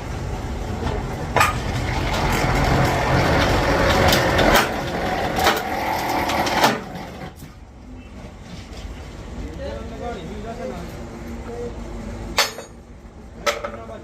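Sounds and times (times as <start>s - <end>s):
heavy machinery rumble: 0.0s - 12.2s
sharp metal clanks: 12.4s - 12.8s.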